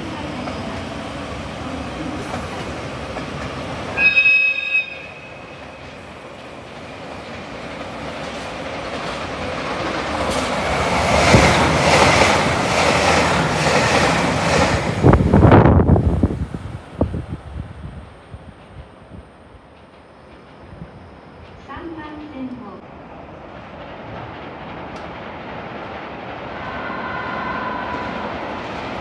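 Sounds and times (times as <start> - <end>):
train passing: 0.0 - 29.0
train horn: 4.0 - 5.7, 26.6 - 28.5
wheels clacking over rail joints: 23.5 - 26.4.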